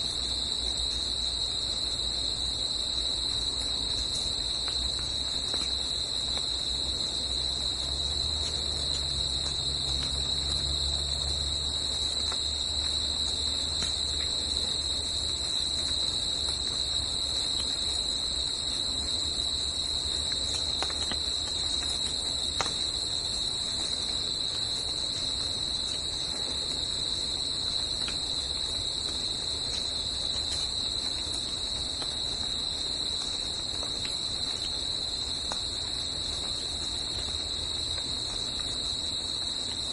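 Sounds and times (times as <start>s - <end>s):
crickets trilling: 0.0s - 39.9s
faint ticks: 3.2s - 6.7s, 12.2s - 16.8s, 19.8s - 24.1s, 28.0s - 32.5s.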